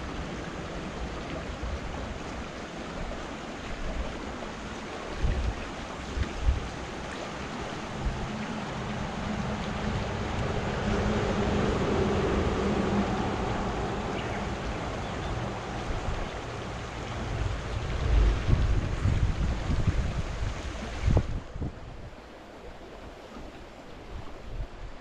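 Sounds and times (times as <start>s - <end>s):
stream water flowing: 0.0s - 25.0s
wind buffeting microphone: 5.1s - 22.9s
low hum: 7.9s - 22.1s.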